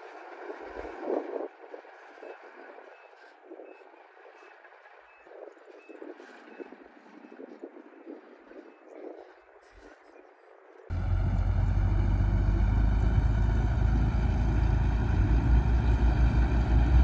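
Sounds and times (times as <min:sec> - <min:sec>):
bulldozer diesel engine running: 0:10.9 - 0:17.0.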